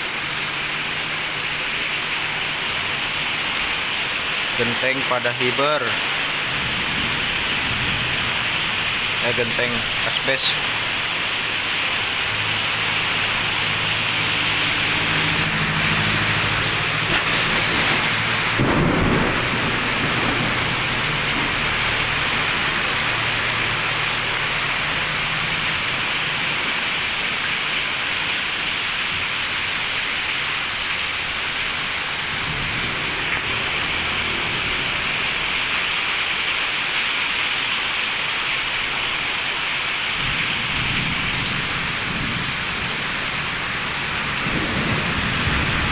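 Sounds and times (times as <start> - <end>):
heavy rain hissing: 0.0 - 45.9
thunder rumbling: 6.0 - 9.2, 14.3 - 23.3, 40.2 - 45.9.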